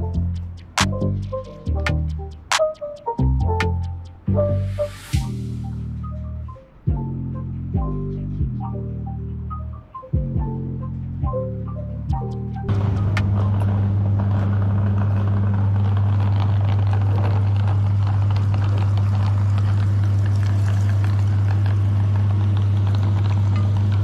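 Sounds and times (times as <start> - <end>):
electric meat grinder humming: 12.7 - 24.0
faint crackling: 12.7 - 24.0.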